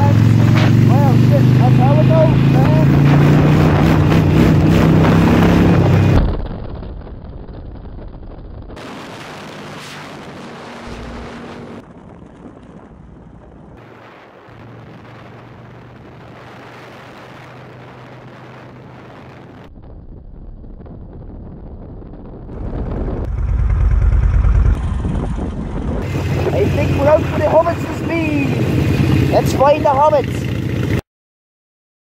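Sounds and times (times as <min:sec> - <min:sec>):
motorcycle engine running: 0:00.0 - 0:06.2, 0:22.6 - 0:31.0
wind buffeting microphone: 0:00.0 - 0:29.5.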